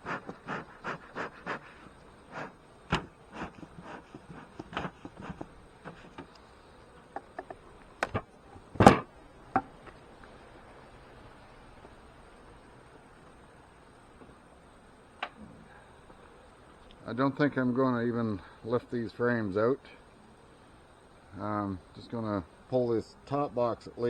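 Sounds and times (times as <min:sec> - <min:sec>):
bellows puffing: 0:00.0 - 0:07.0.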